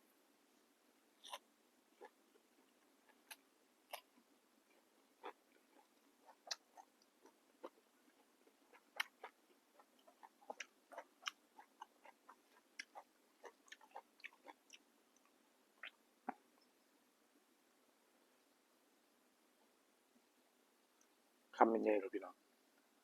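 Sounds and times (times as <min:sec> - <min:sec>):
person chewing crunchy food: 0:01.2 - 0:01.4, 0:02.0 - 0:15.9.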